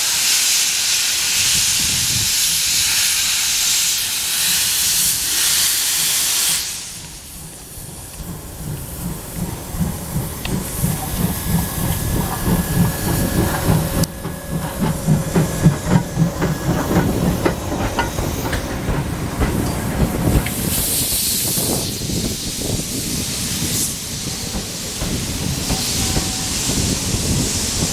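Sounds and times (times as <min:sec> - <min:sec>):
steam hiss: 0:00.0 - 0:27.9
locomotive exhaust beats: 0:07.0 - 0:27.9.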